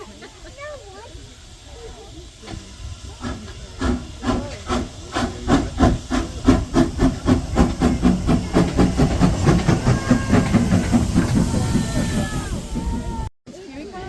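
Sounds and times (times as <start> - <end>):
steam hiss: 0.0 - 14.0
steam locomotive chuffing: 0.0 - 14.0.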